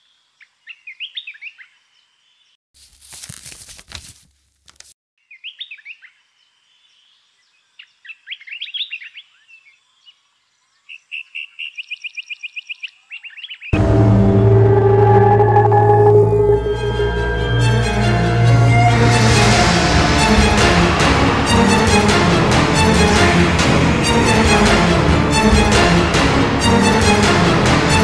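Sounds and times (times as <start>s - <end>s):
rough noise burst: 13.8s - 28.0s.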